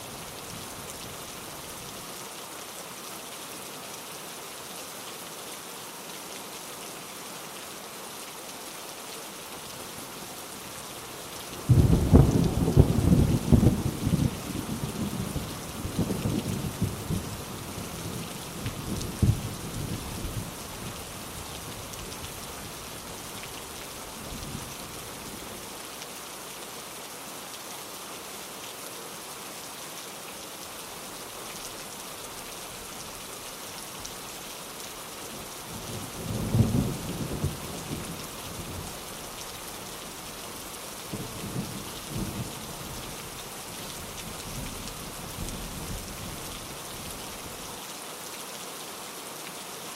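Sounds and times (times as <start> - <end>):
steady rain falling: 0.0 - 49.9
thunder rumbling: 11.7 - 15.3.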